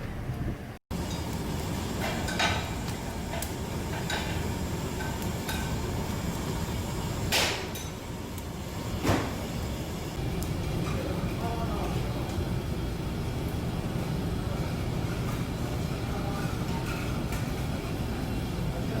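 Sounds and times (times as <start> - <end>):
steady low hum: 0.0 - 19.0
dishes and metal utensils clinking: 2.0 - 5.9, 16.2 - 17.9.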